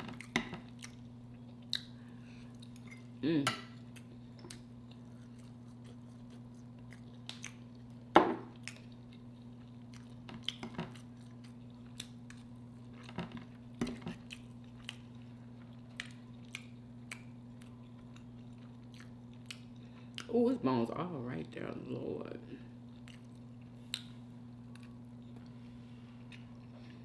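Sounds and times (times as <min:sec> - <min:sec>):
low steady hum: 0:00.0 - 0:27.0
mouth smacks and chewing: 0:14.1 - 0:20.3, 0:23.0 - 0:25.5.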